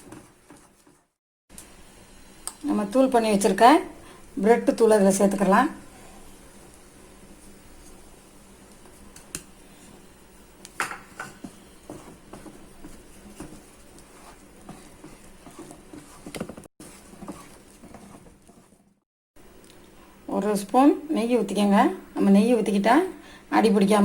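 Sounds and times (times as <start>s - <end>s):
spoon stirring thick batter: 0.0s - 1.2s, 11.0s - 19.0s.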